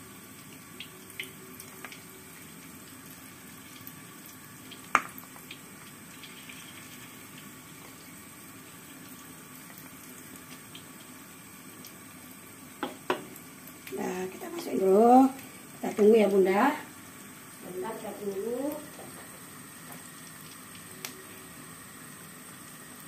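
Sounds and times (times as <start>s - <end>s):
batter sizzling in hot oil: 0.0s - 23.0s
spatula tapping pan: 12.8s - 13.4s.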